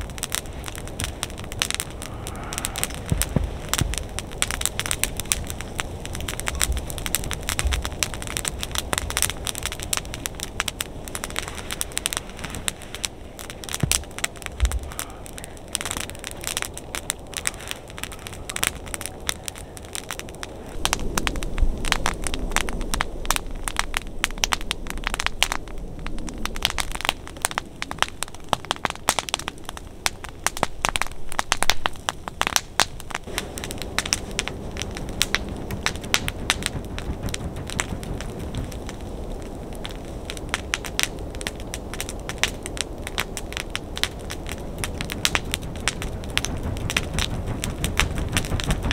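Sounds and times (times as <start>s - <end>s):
low steady rushing: 0.0s - 32.1s, 33.2s - 48.9s
wood fire crackling and popping: 0.0s - 48.9s.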